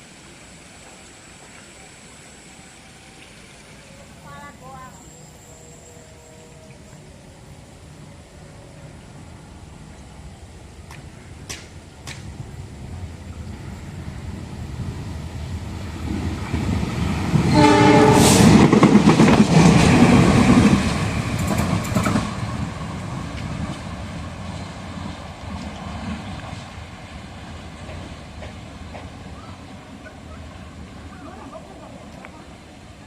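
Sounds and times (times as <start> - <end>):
locomotive wheel and engine noise: 0.0 - 33.0
locomotive horn blast: 17.5 - 18.7.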